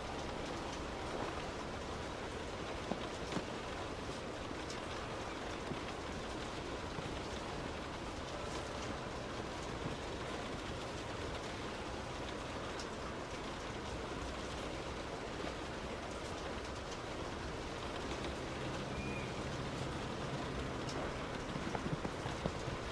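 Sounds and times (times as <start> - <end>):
rain and tyre spray: 0.0 - 22.9
car running noise: 17.8 - 22.9.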